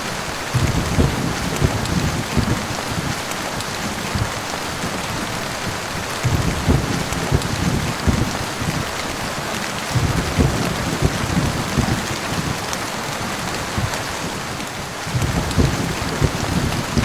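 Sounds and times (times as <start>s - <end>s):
heavy rain falling: 0.0s - 17.0s
low thuds: 0.6s - 3.2s, 6.2s - 8.9s, 9.9s - 12.6s, 15.1s - 17.0s.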